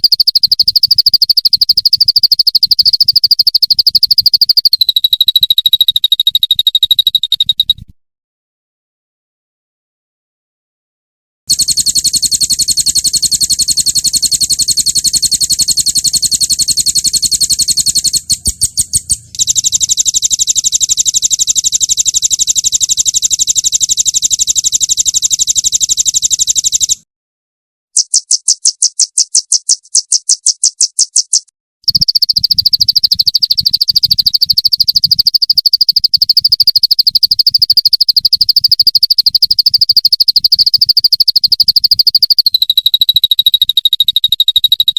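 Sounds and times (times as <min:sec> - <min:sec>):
songbird trills: 0:00.0 - 0:07.8, 0:11.6 - 0:27.0, 0:28.0 - 0:35.2.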